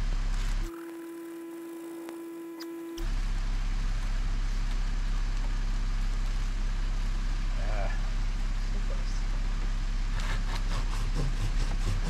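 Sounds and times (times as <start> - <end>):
steady hum tone: 0.0 - 12.0
car engine idling: 3.0 - 10.2.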